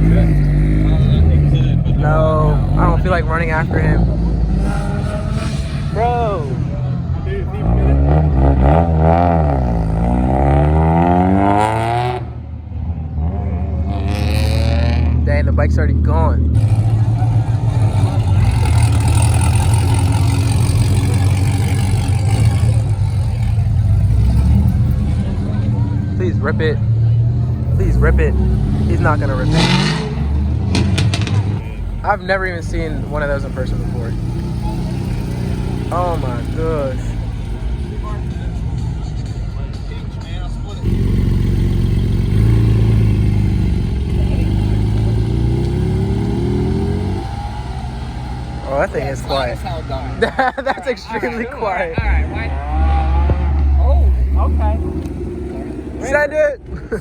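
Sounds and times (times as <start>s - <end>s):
car engine rumbling: 0.0s - 57.0s.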